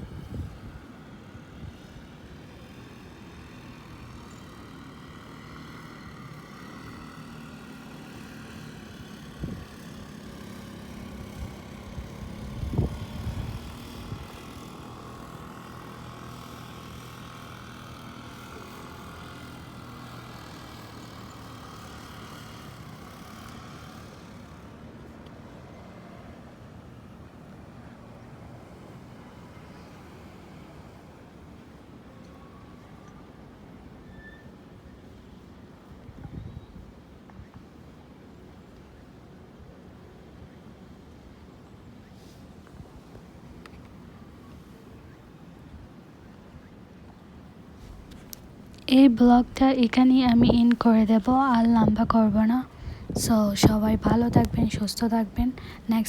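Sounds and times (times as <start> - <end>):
vehicle engine humming: 0.0 - 33.4, 42.1 - 56.0
noisy background: 42.8 - 56.0.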